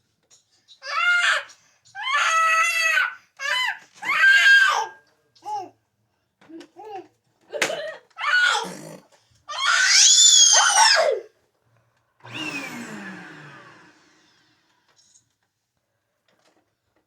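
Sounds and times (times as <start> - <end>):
vacuum cleaner motor whine: 12.2 - 15.2.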